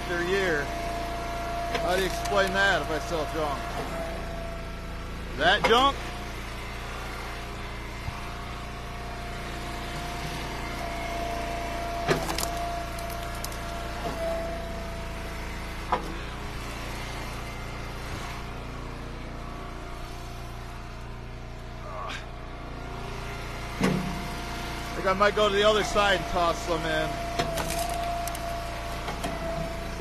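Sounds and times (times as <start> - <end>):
hydraulic log splitter whine: 0.0 - 30.0
wood cracking: 12.0 - 14.0, 27.4 - 28.6.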